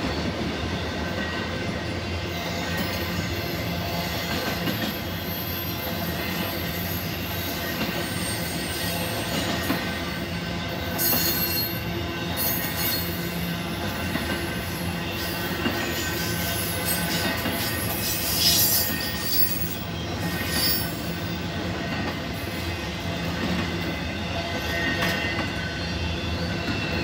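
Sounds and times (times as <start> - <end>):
train wheels rumbling on rail: 0.0 - 27.0
high wheel squeal: 2.4 - 10.3, 14.6 - 21.5.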